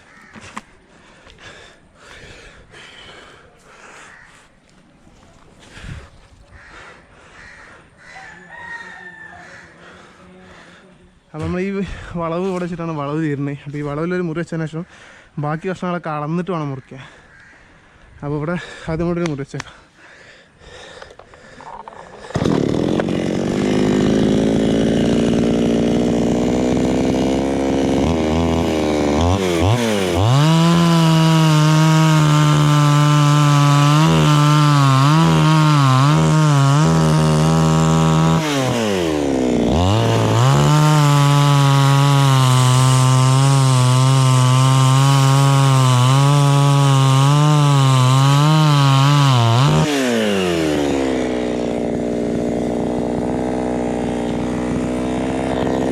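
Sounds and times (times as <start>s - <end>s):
chainsaw cutting log: 11.4s - 11.8s, 21.0s - 55.9s.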